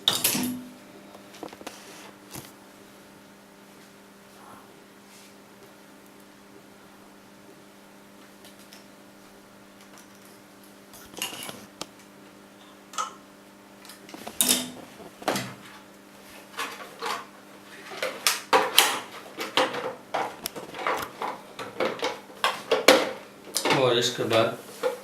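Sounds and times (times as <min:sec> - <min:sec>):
clicks and clatter of tools: 0:11.0 - 0:11.7.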